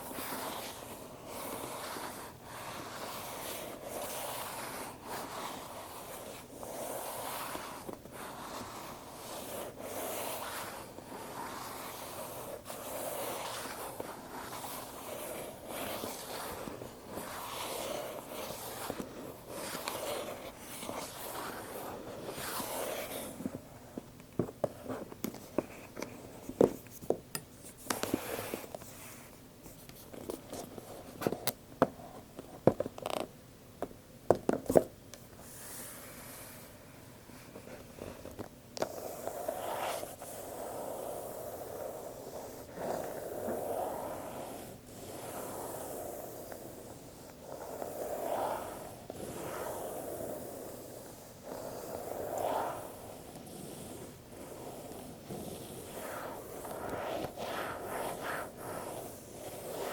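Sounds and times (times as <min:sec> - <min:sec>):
rubbing on cardboard box: 0:00.0 - 0:23.4, 0:51.4 - 0:59.9.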